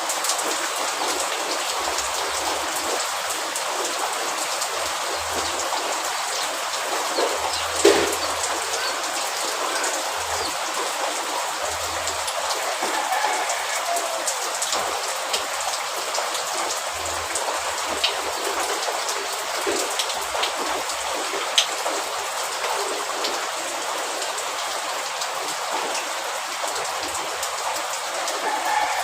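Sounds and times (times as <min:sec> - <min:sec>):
raindrops ticking sharply: 0:00.0 - 0:29.0
steady rain falling: 0:00.0 - 0:29.0.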